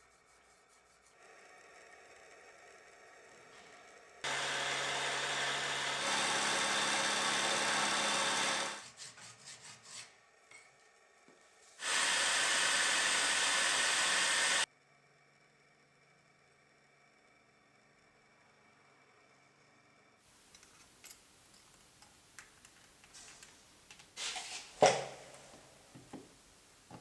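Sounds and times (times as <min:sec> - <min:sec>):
power tool running: 0:04.2 - 0:08.8, 0:11.8 - 0:14.7.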